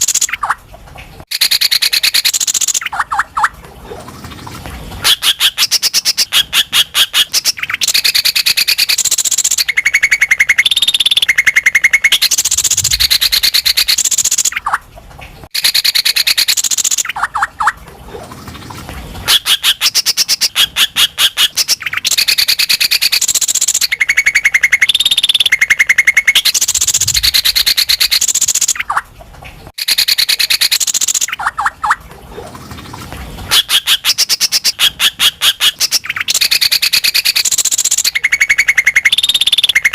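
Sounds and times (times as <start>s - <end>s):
bird chattering and whistling: 1.3s - 3.5s, 5.0s - 14.8s, 15.6s - 17.8s, 19.3s - 29.0s, 29.8s - 32.0s, 33.5s - 39.9s.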